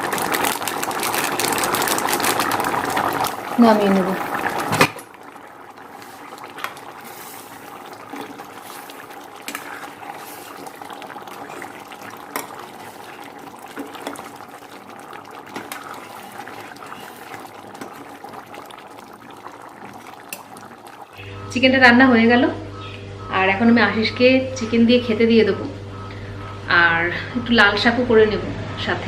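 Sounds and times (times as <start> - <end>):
gravy bubbling in a pan: 0.0 - 21.3.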